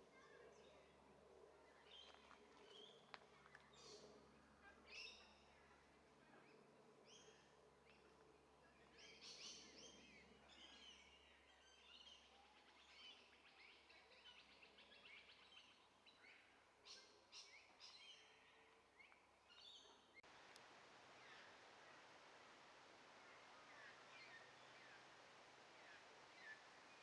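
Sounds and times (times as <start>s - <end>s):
small birds chirping: 1.6s - 27.0s
steady hiss: 20.2s - 27.0s.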